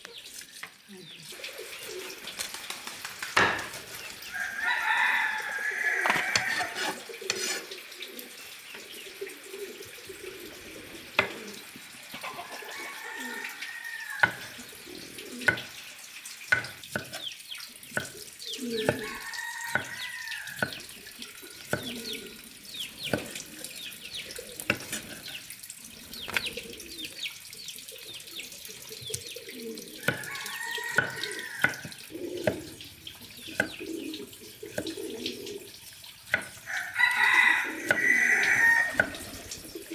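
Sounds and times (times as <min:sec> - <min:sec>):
chickens clucking: 0:00.0 - 0:15.9, 0:18.0 - 0:27.2, 0:28.6 - 0:35.7, 0:36.3 - 0:39.9
water splashing and trickling: 0:00.0 - 0:39.9
sharp knocks: 0:03.4 - 0:03.9
rooster crowing: 0:04.3 - 0:07.0, 0:12.2 - 0:14.5, 0:19.0 - 0:20.6, 0:30.0 - 0:31.9, 0:36.6 - 0:39.2.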